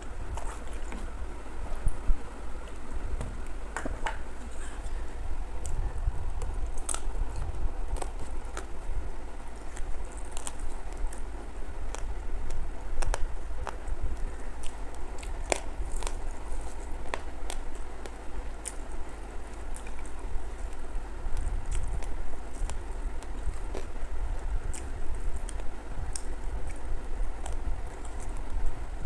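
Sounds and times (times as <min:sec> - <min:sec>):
person chewing food: 0:00.0 - 0:02.0
steady low rumble: 0:00.0 - 0:29.0.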